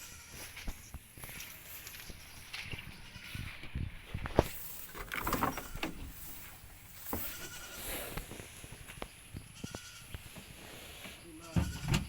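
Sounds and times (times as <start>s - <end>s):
faint animal bleating: 0.0s - 0.6s, 7.2s - 8.0s, 9.6s - 10.2s, 11.2s - 12.0s.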